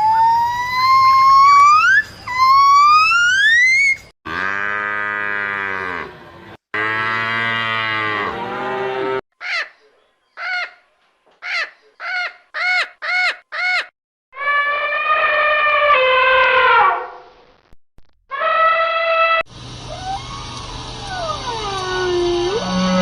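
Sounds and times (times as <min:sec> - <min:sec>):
cow mooing: 0:04.3 - 0:09.2.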